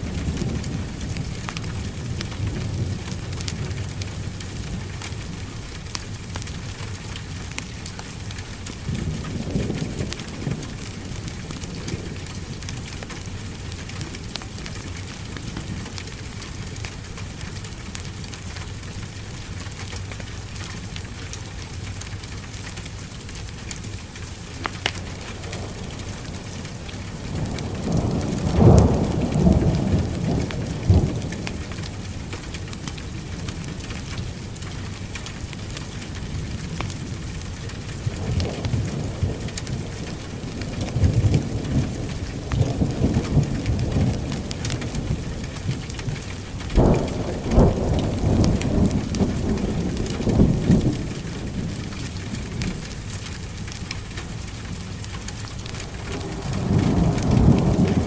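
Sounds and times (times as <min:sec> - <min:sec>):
steady rain hissing: 0:00.0 - 0:58.0
fireplace crackles: 0:22.2 - 0:38.8, 0:44.5 - 0:58.0
thunder rumbling: 0:23.8 - 0:58.0.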